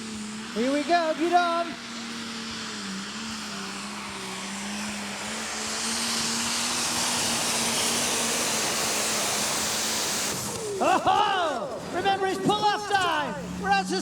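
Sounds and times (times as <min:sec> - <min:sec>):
tractor engine running flat out: 0:00.0 - 0:14.0.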